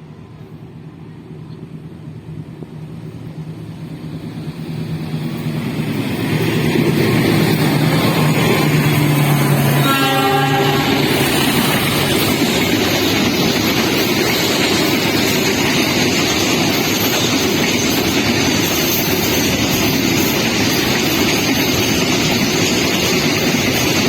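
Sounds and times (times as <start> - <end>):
diesel locomotive engine: 0.0 - 24.0
chord of high-pitched horn tones: 9.6 - 11.2.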